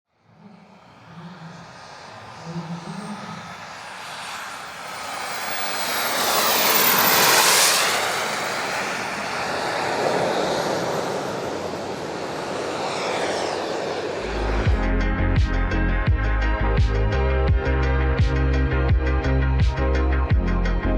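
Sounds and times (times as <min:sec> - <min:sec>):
model jet turbine whine: 0:00.1 - 0:14.8.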